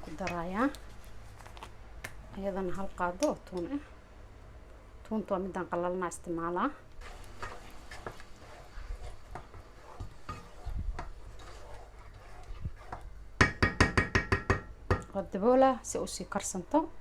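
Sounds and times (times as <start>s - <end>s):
utensil knocking in a pot: 12.8s - 15.1s
utensil tapping metal pot: 12.8s - 15.2s.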